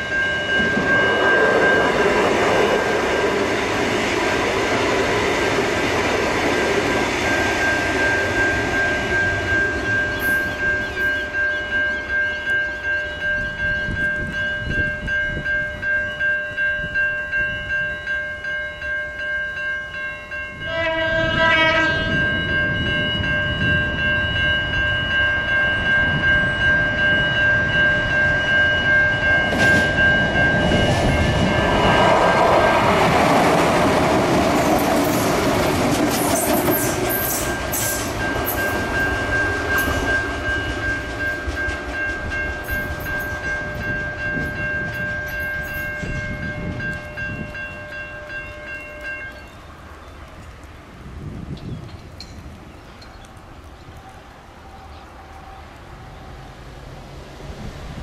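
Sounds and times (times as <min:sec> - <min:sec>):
train horn blast: 0:20.6 - 0:22.4
train wheels clacking over rails: 0:29.3 - 0:48.0.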